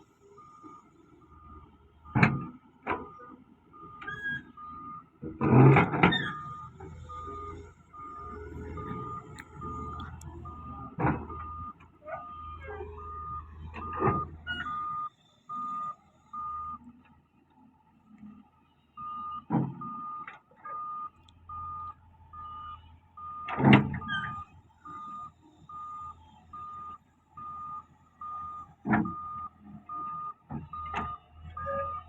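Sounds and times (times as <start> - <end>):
diesel engine running: 0.0 - 16.9
reversing alarm beeping: 0.2 - 5.1, 5.8 - 16.9, 19.0 - 32.0.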